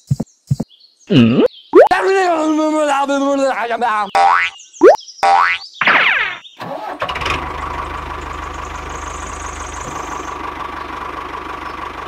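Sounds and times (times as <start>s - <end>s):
tractor engine idling: 6.7s - 12.0s.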